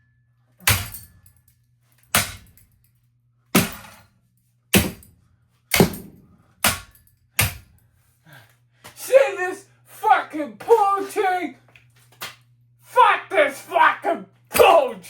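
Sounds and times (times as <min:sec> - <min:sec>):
ceiling fan being smashed: 0:00.6 - 0:01.4, 0:02.0 - 0:02.6, 0:03.6 - 0:04.1, 0:04.8 - 0:05.1, 0:05.7 - 0:07.8
steady low hum: 0:00.6 - 0:15.0.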